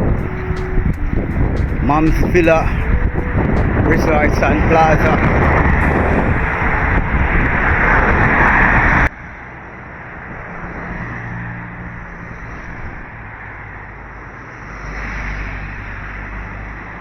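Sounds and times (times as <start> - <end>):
passing traffic engine hum: 0.0 - 17.0
wind rumble on microphone: 0.0 - 17.0.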